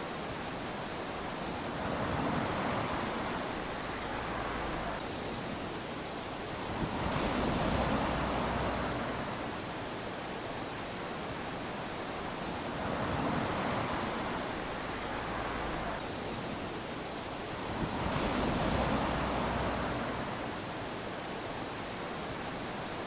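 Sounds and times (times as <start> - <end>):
small waves lapping on beach: 0.0 - 23.0.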